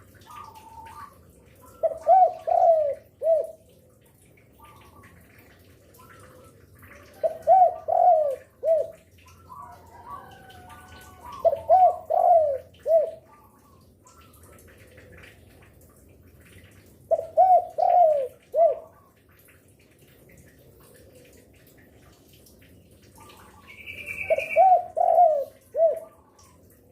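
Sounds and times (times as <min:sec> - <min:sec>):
dove cooing: 0:00.2 - 0:03.7, 0:06.0 - 0:13.7, 0:17.1 - 0:19.1, 0:23.3 - 0:26.7.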